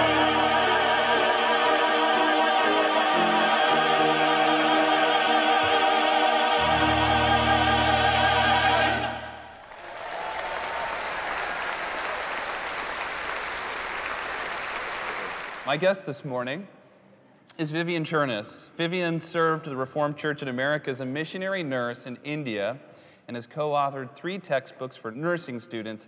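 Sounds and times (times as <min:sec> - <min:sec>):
choir and orchestra chord: 0:00.0 - 0:09.6
audience applauding: 0:09.0 - 0:15.8.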